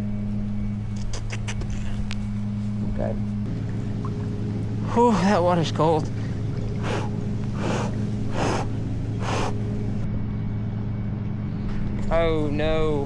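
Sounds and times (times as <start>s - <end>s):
man gasping: 4.9s - 5.5s, 6.8s - 9.6s.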